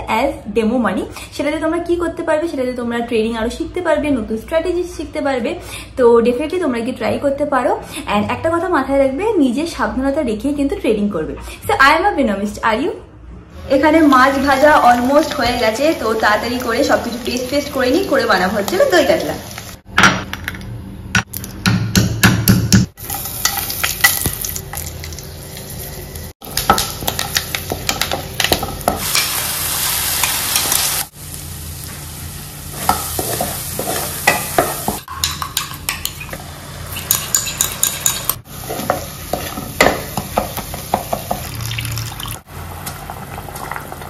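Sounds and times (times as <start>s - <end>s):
spices sizzling in hot oil: 14.0s - 19.9s, 23.0s - 44.0s
wooden spatula scraping pot: 33.1s - 34.7s.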